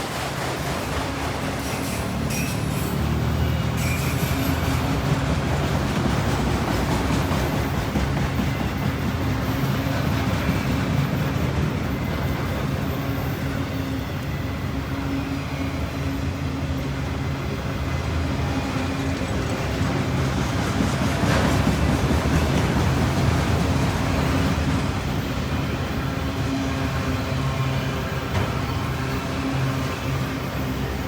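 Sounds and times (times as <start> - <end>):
diesel locomotive engine running: 0.0 - 31.0
train wheels rolling: 0.0 - 31.0.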